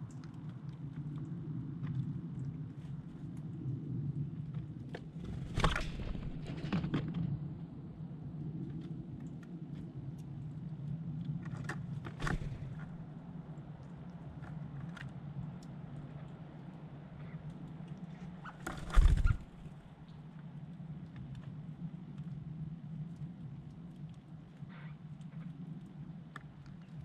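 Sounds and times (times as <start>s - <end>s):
birds tapping and scuffling: 5.2s - 7.3s, 11.5s - 13.0s, 18.4s - 19.9s.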